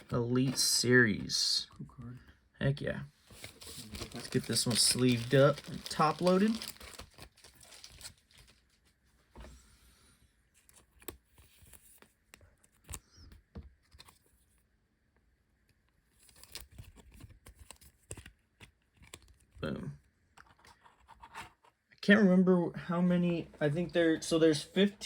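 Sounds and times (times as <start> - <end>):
plastic card sleeve rustling: 3.2 - 9.0, 10.6 - 14.5, 16.1 - 19.6.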